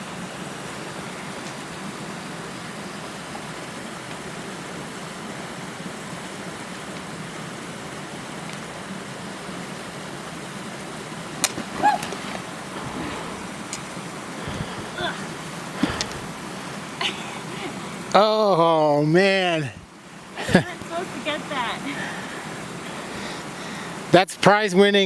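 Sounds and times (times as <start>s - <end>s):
creek water rushing: 0.0s - 24.2s
brief cry: 11.6s - 13.5s, 14.5s - 16.1s.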